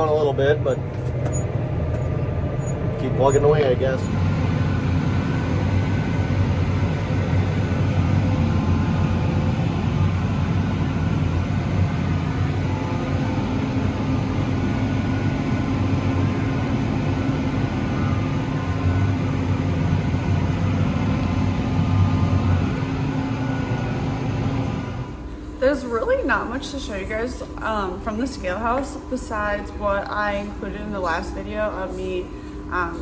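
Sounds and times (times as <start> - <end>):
vehicle engine running: 0.0 - 25.3.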